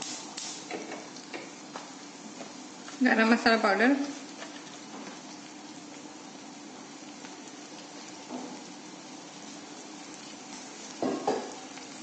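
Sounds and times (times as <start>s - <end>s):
spices sizzling in oil: 0.0s - 12.0s.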